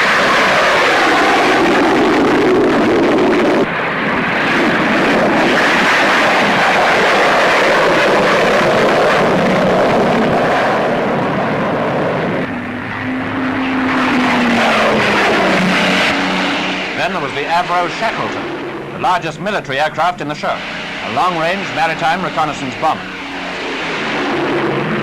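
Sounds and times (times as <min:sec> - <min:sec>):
jet aircraft flying past: 0:00.0 - 0:25.0
low hum: 0:08.4 - 0:25.0.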